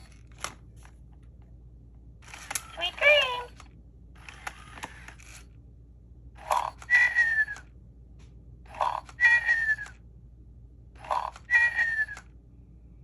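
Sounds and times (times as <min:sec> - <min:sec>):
toy parrot squawks: 0:06.5 - 0:07.6, 0:08.8 - 0:09.9, 0:11.0 - 0:12.2.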